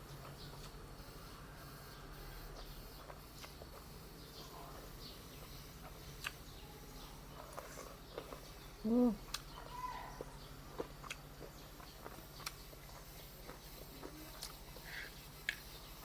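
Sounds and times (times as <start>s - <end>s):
birds chirping: 0.0s - 16.0s
chewing and utensil clicks: 0.1s - 0.8s, 2.5s - 4.0s, 4.7s - 8.5s, 9.2s - 15.8s.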